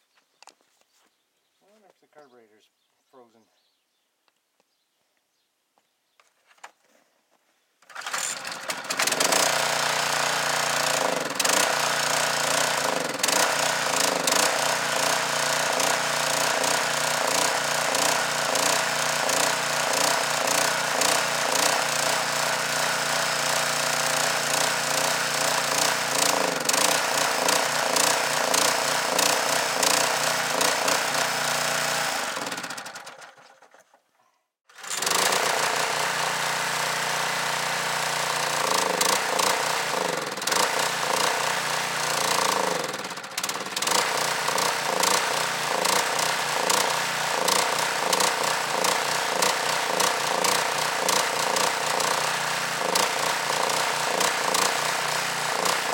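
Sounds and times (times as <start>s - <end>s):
small gasoline engine running: 7.8s - 34.0s, 34.7s - 55.9s.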